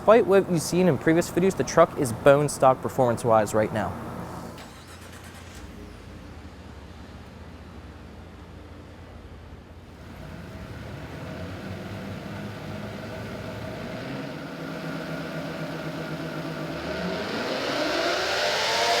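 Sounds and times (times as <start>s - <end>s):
truck engine revving on dyno: 9.9s - 19.0s.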